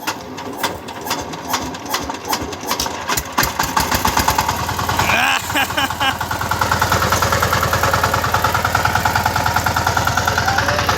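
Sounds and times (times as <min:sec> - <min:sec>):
tiller engine starting and chugging: 0:00.0 - 0:10.9.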